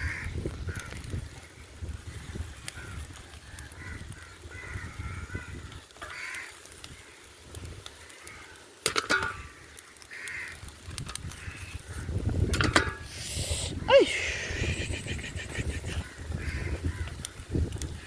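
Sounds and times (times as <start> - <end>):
harsh bird calls: 13.1 - 17.2.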